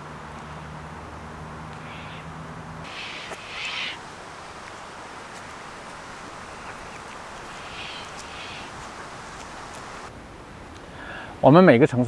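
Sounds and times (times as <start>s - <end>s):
steady outdoor hiss: 0.0s - 12.0s
short bird calls: 1.8s - 10.1s.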